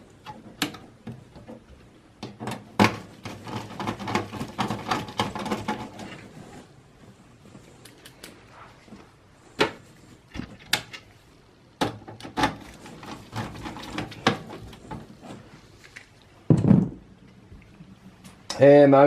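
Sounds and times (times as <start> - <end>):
clicks and knocks of computer hardware: 0.2 - 6.2.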